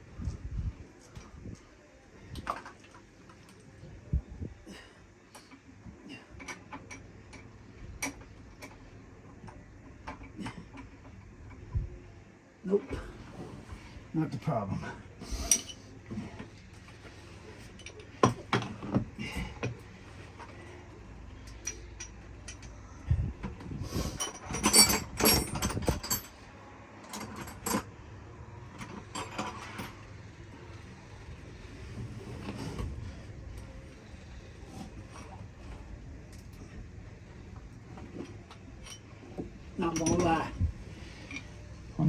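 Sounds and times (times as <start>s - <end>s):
tools clinking against metal: 15.3s - 15.9s, 21.4s - 22.9s, 24.1s - 27.9s, 28.8s - 30.1s, 38.0s - 41.6s.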